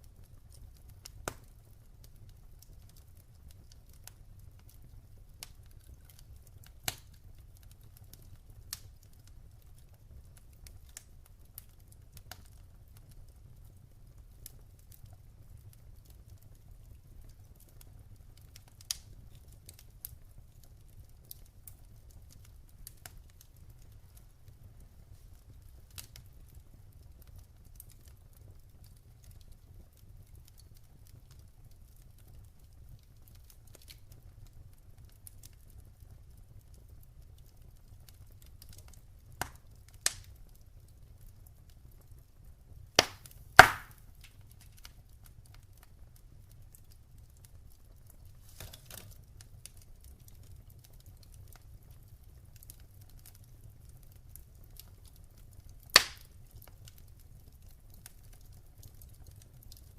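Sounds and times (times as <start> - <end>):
wood fire crackling: 0.0 - 59.9
sharp pops of fire: 0.5 - 1.8, 5.4 - 9.3, 18.4 - 20.2, 38.6 - 40.4, 43.0 - 45.0, 55.8 - 56.7.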